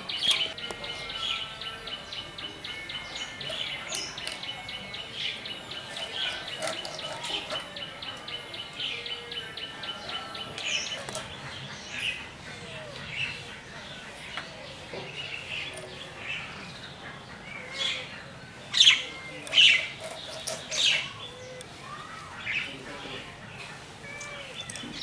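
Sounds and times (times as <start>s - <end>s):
outdoor background hiss: 0.0s - 25.0s.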